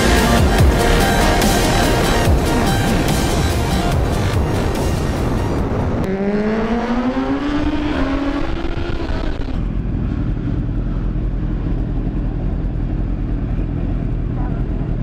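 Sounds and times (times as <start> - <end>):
motorcycles idling: 0.0 - 6.0, 9.6 - 15.0
motorcycle engine revving: 0.0 - 15.0
wind rush: 2.2 - 10.5.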